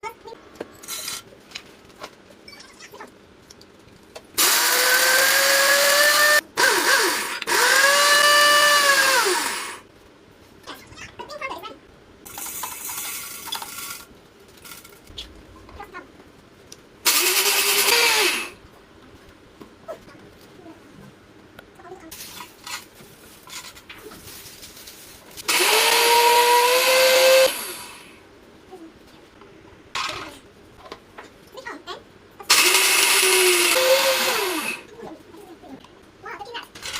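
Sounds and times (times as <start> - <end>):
blender motor whining: 4.4 - 9.8, 17.1 - 18.6, 25.5 - 28.1, 32.5 - 34.9.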